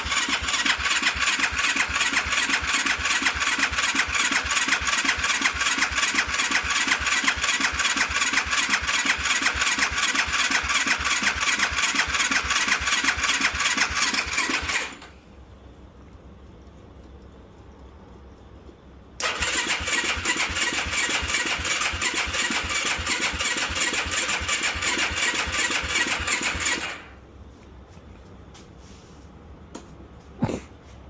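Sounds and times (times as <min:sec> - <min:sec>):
engine cranking on electric starter: 0:00.0 - 0:15.3, 0:19.2 - 0:27.2.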